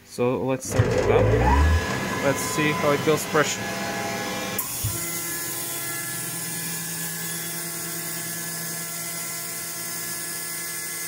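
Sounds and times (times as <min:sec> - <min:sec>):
air compressor whine and hiss: 0:00.9 - 0:05.6.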